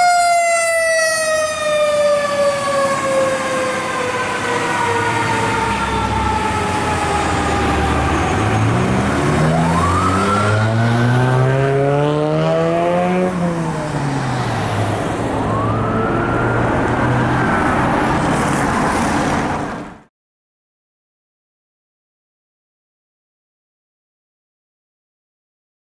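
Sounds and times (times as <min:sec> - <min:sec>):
fire engine siren wailing: 0:00.0 - 0:19.4.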